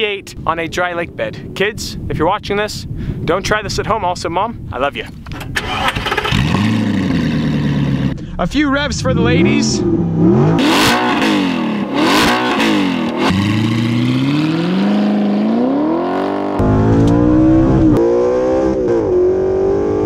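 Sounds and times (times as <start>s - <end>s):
car engine revving and accelerating: 6.2s - 8.2s, 9.1s - 20.0s.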